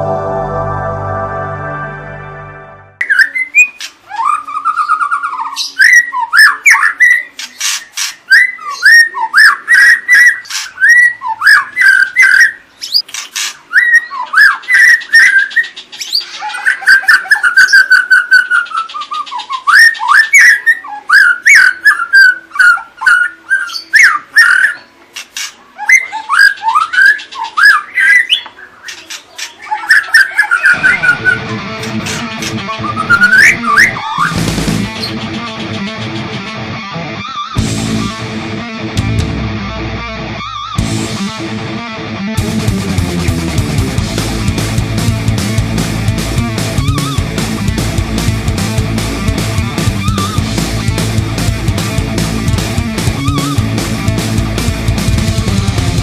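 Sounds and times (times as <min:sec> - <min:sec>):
songbird whistling and chipping: 0:03.0 - 0:31.5, 0:32.1 - 0:34.4, 0:46.8 - 0:47.3, 0:53.1 - 0:53.6.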